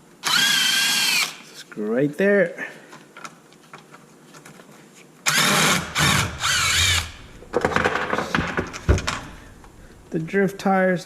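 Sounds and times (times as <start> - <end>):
cordless drill motor whining: 0.2 - 1.4, 5.3 - 7.4.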